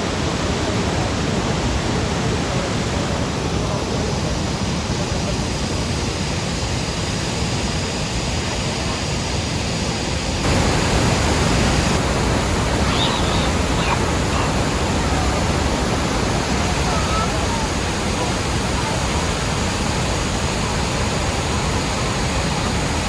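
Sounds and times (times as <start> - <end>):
waterfall rushing: 10.4 - 23.0.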